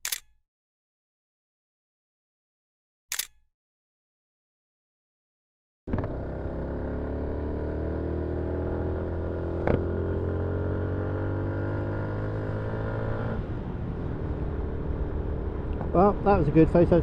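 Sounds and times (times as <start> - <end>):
sharp click: 0.0 - 0.4, 3.1 - 3.5
motorcycle engine running: 5.9 - 11.4.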